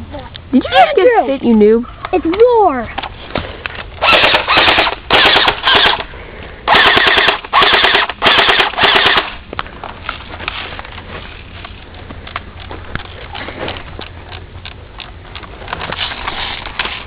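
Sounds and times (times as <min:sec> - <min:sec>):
automatic gunfire bursts: 0:04.0 - 0:06.1, 0:06.7 - 0:09.4.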